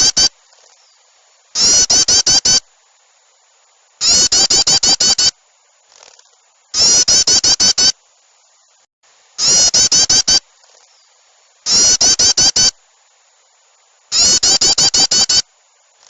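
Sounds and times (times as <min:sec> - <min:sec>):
songbird chattering calls: 0:00.0 - 0:01.0, 0:01.6 - 0:02.6, 0:04.0 - 0:05.3, 0:06.8 - 0:08.0, 0:09.4 - 0:11.1, 0:11.7 - 0:12.8, 0:14.1 - 0:15.4.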